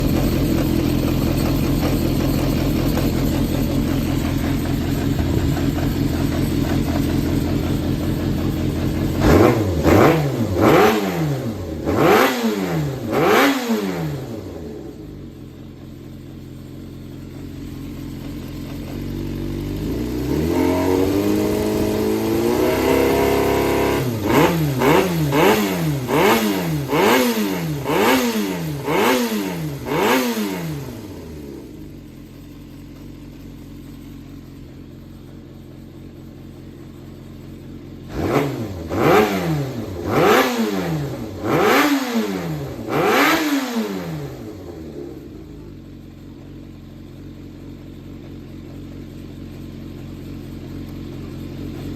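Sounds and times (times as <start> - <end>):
motorcycle engine idling and revving: 0.0 - 51.9.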